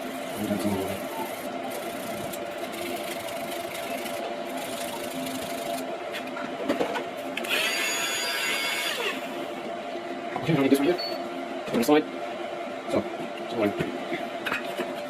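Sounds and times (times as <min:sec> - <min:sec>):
steady machine hum: 0:00.0 - 0:15.0
brief high whine: 0:07.5 - 0:09.2.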